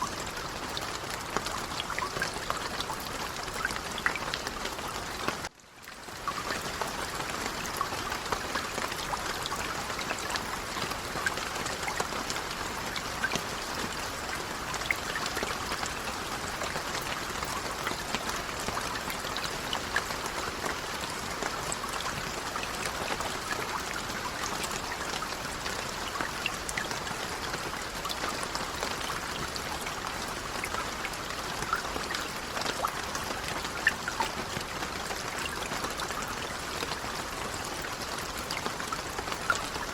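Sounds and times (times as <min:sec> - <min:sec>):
light rain hiss: 0:00.0 - 0:39.9
raindrop ticks: 0:00.0 - 0:39.9.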